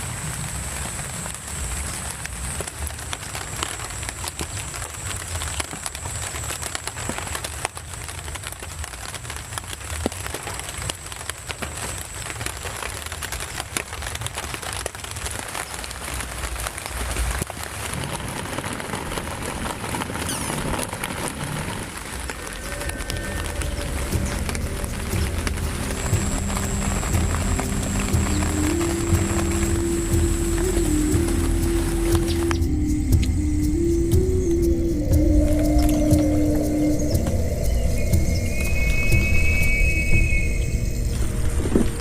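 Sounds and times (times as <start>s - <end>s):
heavy rain falling: 0.0s - 42.0s
low rumble: 19.2s - 42.0s.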